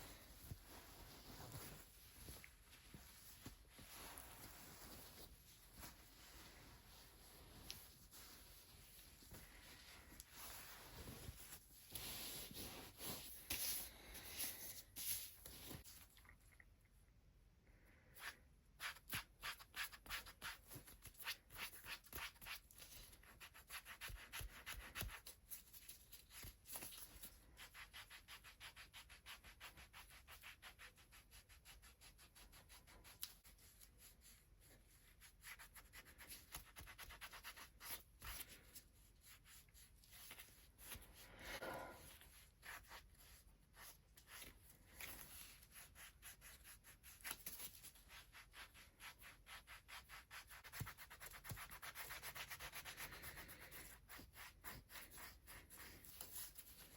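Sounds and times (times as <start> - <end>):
hands rubbing skin: 0.0 - 15.8.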